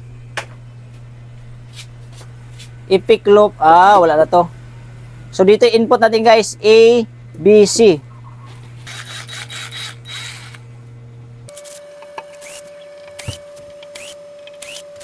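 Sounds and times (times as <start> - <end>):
low hum: 0.0 - 15.0
rubbing and scraping handling noise: 1.7 - 2.8.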